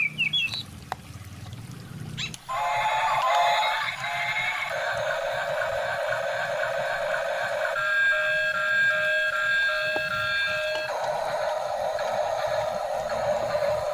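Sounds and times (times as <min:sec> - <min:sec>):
toy rough hissing noise: 0:02.4 - 0:09.2, 0:10.5 - 0:13.9
alarm-like beeping tones: 0:02.5 - 0:13.9.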